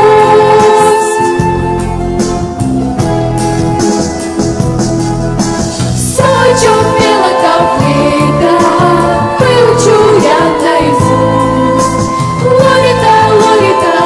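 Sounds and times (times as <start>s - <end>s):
person singing: 0.0s - 1.4s, 6.0s - 14.0s
pop backing track with beat: 0.0s - 14.0s.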